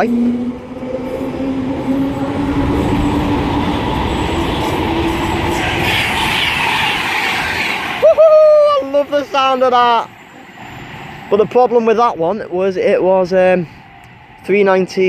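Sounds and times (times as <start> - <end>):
train motor whine: 0.0 - 8.1
electric train passing at speed: 0.0 - 15.0
hissing rush: 0.0 - 15.0.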